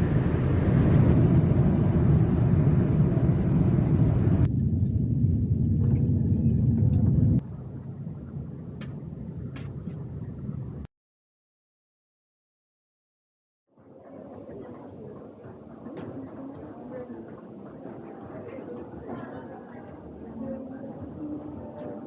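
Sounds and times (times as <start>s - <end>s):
loud mechanical rumble: 0.0s - 4.5s.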